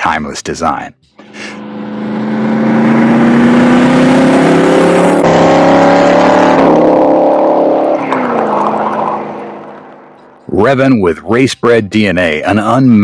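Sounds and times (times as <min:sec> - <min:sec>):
car engine accelerating: 0:01.2 - 0:10.5.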